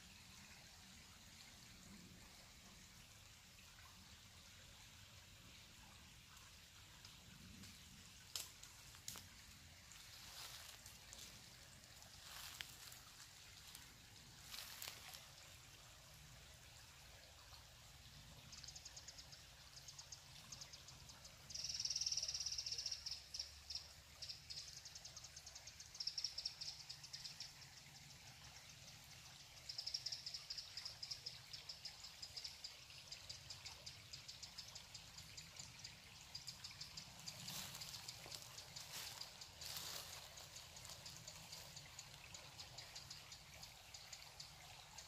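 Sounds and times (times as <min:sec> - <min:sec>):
running water: 0:00.0 - 0:21.7, 0:23.1 - 0:45.0
songbird ticking trills: 0:07.5 - 0:13.8, 0:18.4 - 0:28.8, 0:29.5 - 0:45.0.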